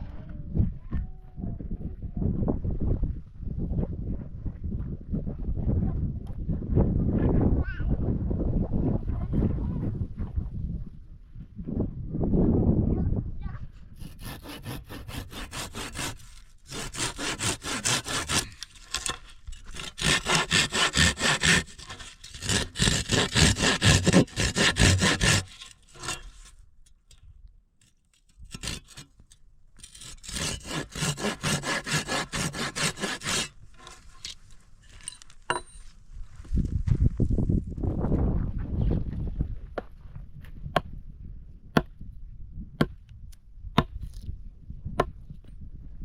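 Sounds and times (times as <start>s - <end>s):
handsaw cutting wood: 14.0s - 26.5s, 28.4s - 29.1s, 29.8s - 35.2s.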